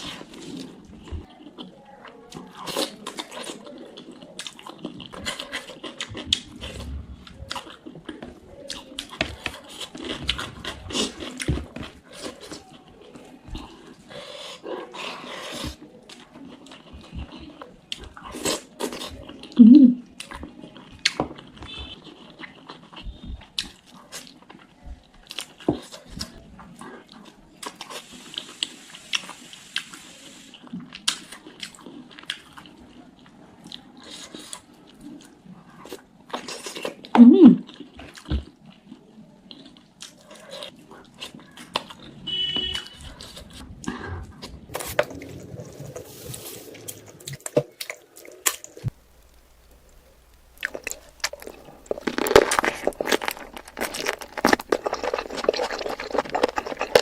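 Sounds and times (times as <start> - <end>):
chewing and biting: 0.0 - 30.0, 30.6 - 57.0
wet mouth clicks: 49.9 - 57.0.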